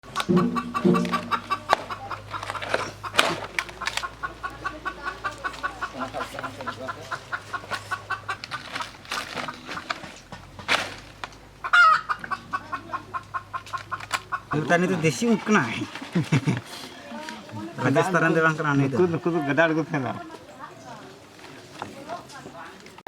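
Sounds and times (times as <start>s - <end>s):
sharp knocks: 0.0s - 1.9s
loud chicken call: 0.0s - 3.2s, 11.6s - 13.7s
chickens clucking: 0.0s - 23.0s.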